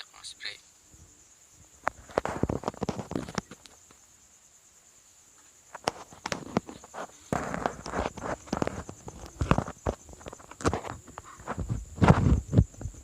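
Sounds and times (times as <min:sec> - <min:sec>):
high insect trill: 0:00.0 - 0:13.0
footsteps crunching on rough ground: 0:05.8 - 0:13.0.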